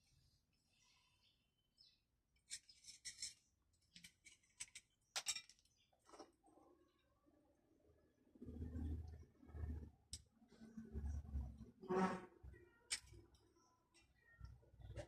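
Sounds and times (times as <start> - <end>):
small parts clicking and scraping: 2.4 - 5.9, 12.9 - 14.2.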